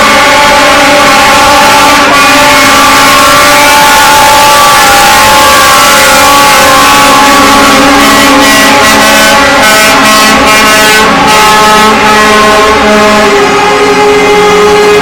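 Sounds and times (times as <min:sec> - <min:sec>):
truck horns sounding: 0:00.0 - 0:15.0
trucks driving past: 0:00.0 - 0:15.0.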